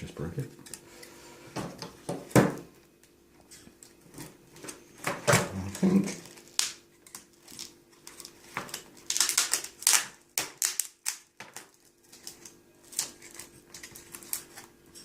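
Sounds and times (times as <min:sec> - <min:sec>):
cracked glass screen clicking and crackling: 0:06.1 - 0:15.0.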